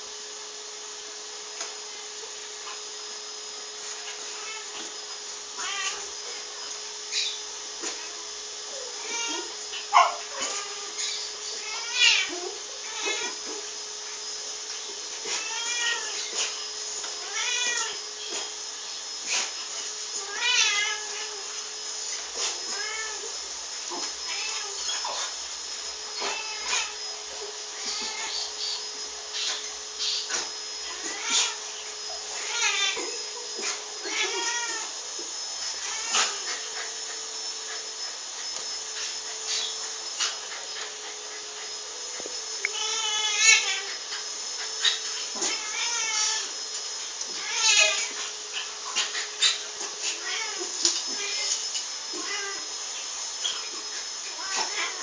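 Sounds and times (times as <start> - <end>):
animal meow-like crying: 4.2 - 4.8, 5.5 - 6.2, 7.1 - 13.5, 15.3 - 16.3, 17.2 - 18.4, 20.2 - 21.5, 22.7 - 23.3, 24.3 - 25.0, 26.2 - 27.0, 27.7 - 28.8, 29.4 - 31.8, 32.4 - 35.0, 35.8 - 36.5, 42.6 - 44.0, 44.8 - 46.6, 47.3 - 48.2, 49.4 - 52.7, 54.3 - 55.0.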